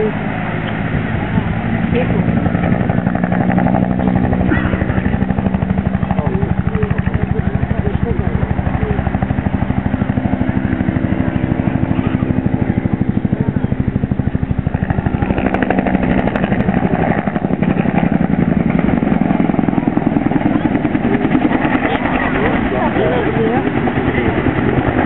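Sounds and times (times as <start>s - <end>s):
aircraft engine drone overhead: 0.0s - 25.0s.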